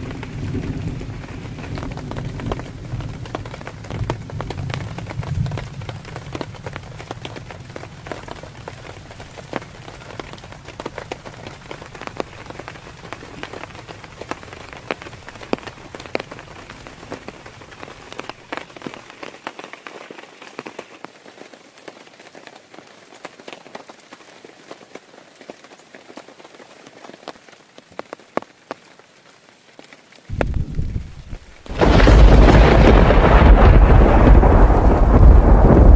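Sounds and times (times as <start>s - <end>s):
heavy rain falling: 0.0s - 35.9s
low rumble: 30.3s - 35.9s.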